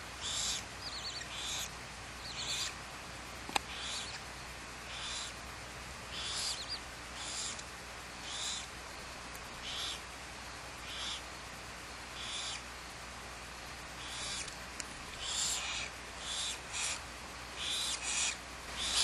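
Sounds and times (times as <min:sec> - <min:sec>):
owl hoarse hisses: 0:07.2 - 0:07.6, 0:08.2 - 0:08.7, 0:14.0 - 0:14.5, 0:15.2 - 0:17.0, 0:17.6 - 0:19.0.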